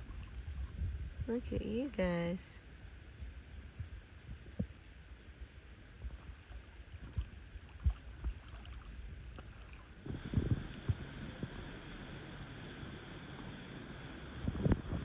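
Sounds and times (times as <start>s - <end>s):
paddle strokes in water: 5.9s - 11.7s
steady rushing noise: 10.0s - 15.0s.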